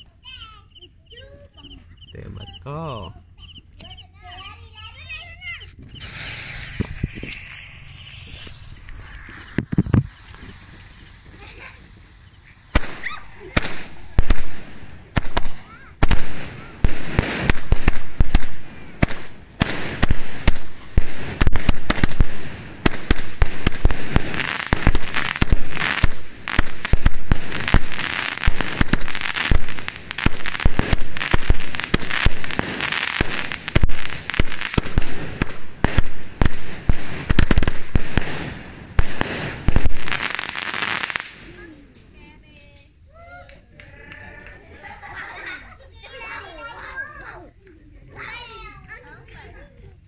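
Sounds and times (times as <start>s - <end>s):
crackling hiss of firework stars: 3.6s - 42.9s
firework shots and bursts: 5.4s - 41.6s.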